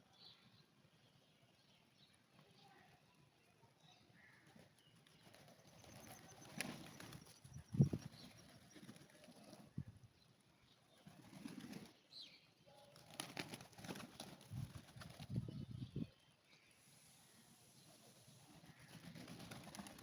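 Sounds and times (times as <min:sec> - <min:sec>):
wing flaps: 0:05.2 - 0:09.7, 0:11.0 - 0:12.0, 0:13.0 - 0:15.4, 0:18.5 - 0:20.0.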